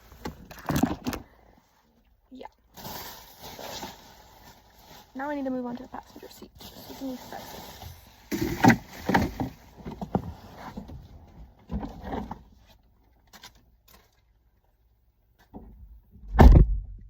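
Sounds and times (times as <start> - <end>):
rustling and light knocks: 7.7 - 14.2
loud deep thump: 16.2 - 17.0.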